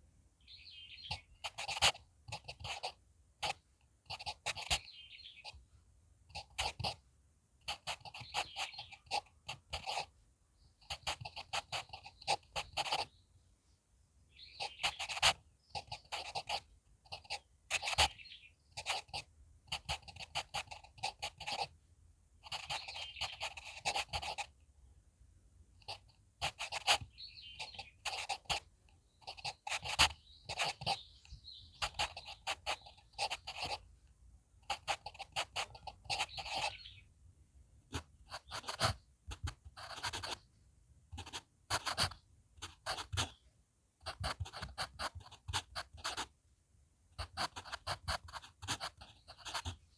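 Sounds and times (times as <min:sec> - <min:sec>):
pencil scratching on paper: 0:01.1 - 0:04.8, 0:06.3 - 0:07.0, 0:07.6 - 0:10.1, 0:10.8 - 0:13.1, 0:14.5 - 0:18.2, 0:18.8 - 0:21.7, 0:22.4 - 0:24.5, 0:25.8 - 0:31.0, 0:31.7 - 0:33.8, 0:34.6 - 0:36.8, 0:37.9 - 0:40.4, 0:41.2 - 0:43.4, 0:44.0 - 0:46.3, 0:47.2 - 0:49.8.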